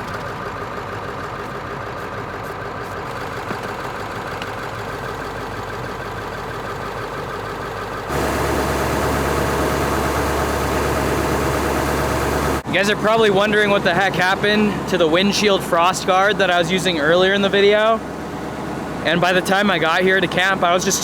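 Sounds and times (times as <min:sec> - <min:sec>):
diesel engine idling: 0:00.0 - 0:21.0
deep hum: 0:08.1 - 0:20.6.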